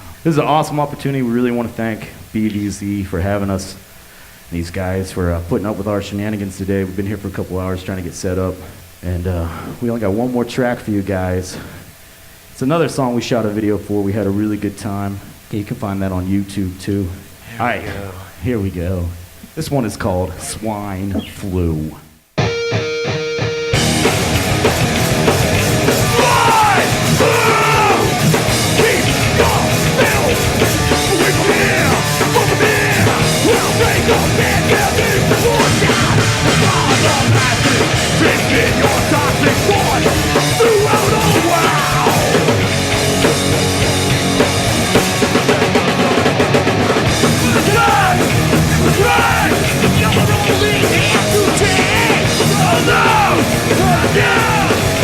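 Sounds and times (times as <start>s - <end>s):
person yelling vocals: 17.5s - 18.3s, 26.0s - 42.6s, 47.3s - 55.0s
punk band playing live: 22.4s - 55.0s.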